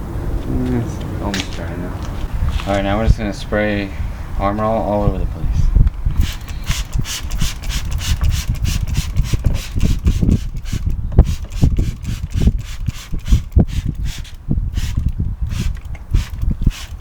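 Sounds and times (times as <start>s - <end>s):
spray bottle squirting: 6.1s - 17.0s.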